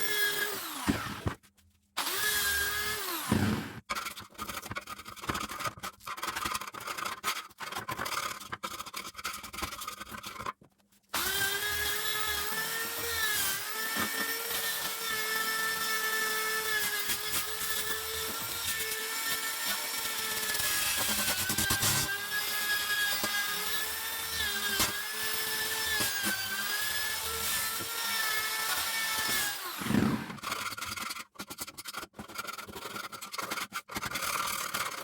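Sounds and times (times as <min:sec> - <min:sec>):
power tool motor whine: 0:00.0 - 0:01.4, 0:02.0 - 0:03.8, 0:11.2 - 0:30.5.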